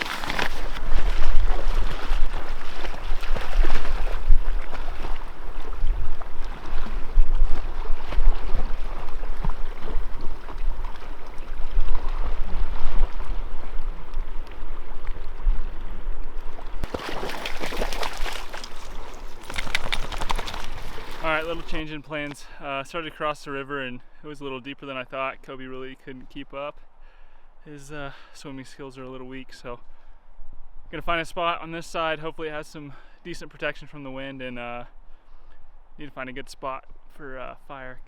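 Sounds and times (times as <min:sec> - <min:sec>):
river water rushing: 0:00.0 - 0:13.5, 0:16.8 - 0:21.8.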